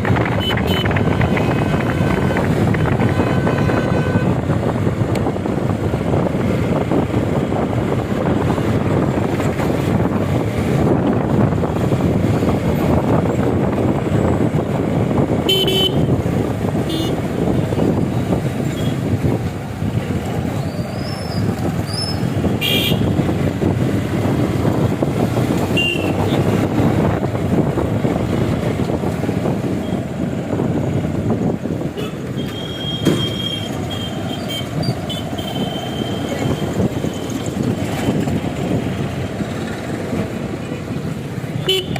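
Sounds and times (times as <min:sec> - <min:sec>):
wind and road rumble: 0:00.0 - 0:41.9
vehicle horn toots: 0:00.3 - 0:04.4, 0:15.4 - 0:16.1, 0:16.8 - 0:17.2, 0:22.6 - 0:23.2, 0:25.7 - 0:26.4, 0:32.0 - 0:36.3, 0:41.6 - 0:41.9.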